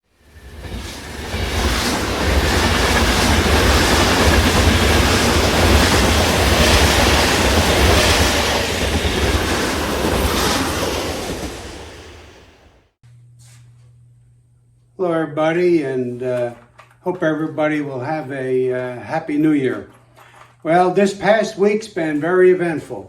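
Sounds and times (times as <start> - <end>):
passing train rumble: 0.1 - 12.9.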